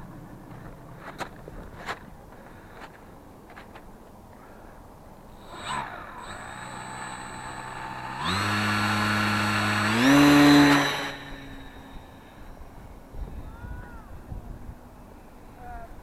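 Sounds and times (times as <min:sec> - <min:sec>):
small motor whining: 0:05.3 - 0:13.5.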